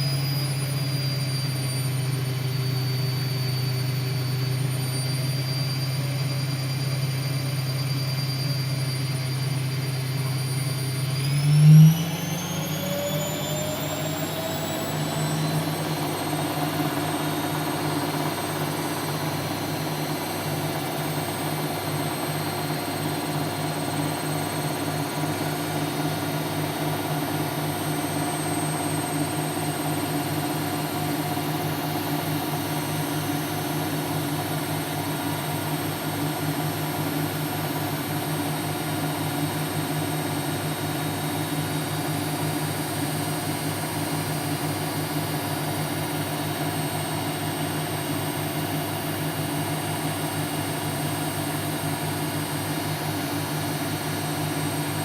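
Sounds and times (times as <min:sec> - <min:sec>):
washing machine spinning: 0:00.0 - 0:55.0
high whine: 0:07.4 - 0:34.6.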